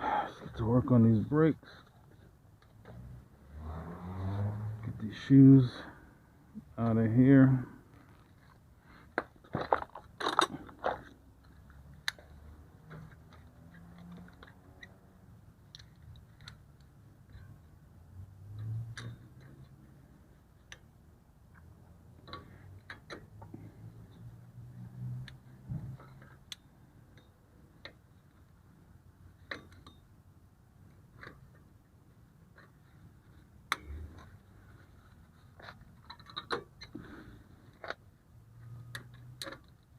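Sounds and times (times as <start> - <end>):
hand tools clicking on metal parts: 9.6 - 11.1.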